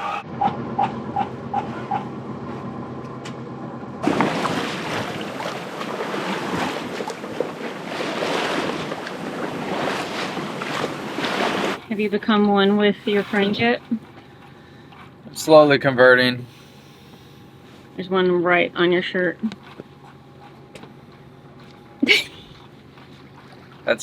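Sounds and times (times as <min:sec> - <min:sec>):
wind and water rushing: 0:04.0 - 0:11.9.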